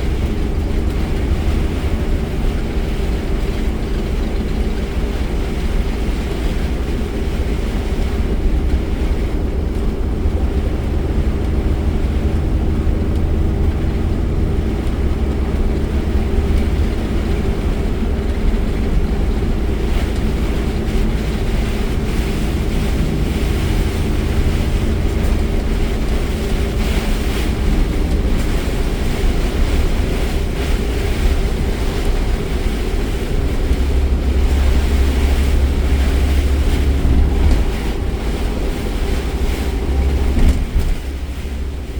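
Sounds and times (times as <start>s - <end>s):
rain hissing: 0.0s - 41.9s
road rumble: 0.0s - 41.9s.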